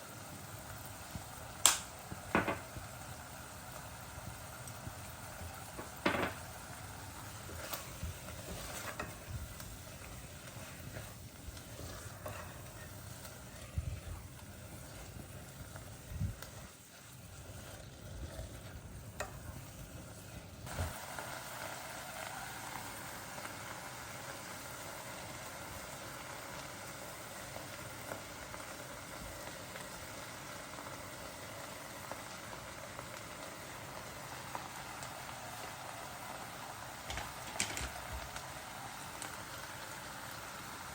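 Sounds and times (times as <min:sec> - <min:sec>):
food sizzling in a pan: 0:00.0 - 0:40.9
utensil stirring and knocking: 0:02.3 - 0:02.8, 0:05.7 - 0:06.6, 0:07.3 - 0:19.8, 0:37.1 - 0:38.3.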